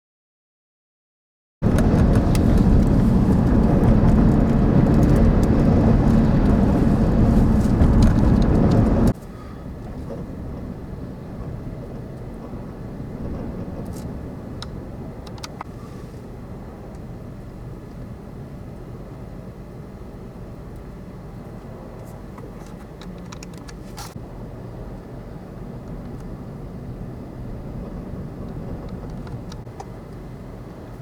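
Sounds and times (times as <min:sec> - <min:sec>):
extreme wind blowing: 0:01.6 - 0:15.7, 0:25.7 - 0:29.7.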